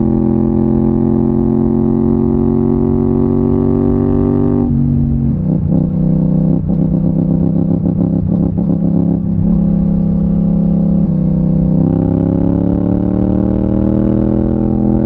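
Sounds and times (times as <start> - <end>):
motorcycle engine burbling: 3.2 - 12.7.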